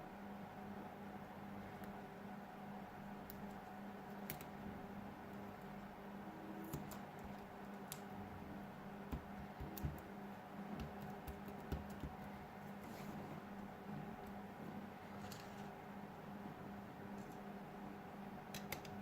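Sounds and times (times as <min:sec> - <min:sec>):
low electrical hum: 0:00.0 - 0:19.0
faint clicks of small parts: 0:03.2 - 0:04.5, 0:06.6 - 0:08.1, 0:15.2 - 0:15.7, 0:17.2 - 0:17.5, 0:18.5 - 0:19.0.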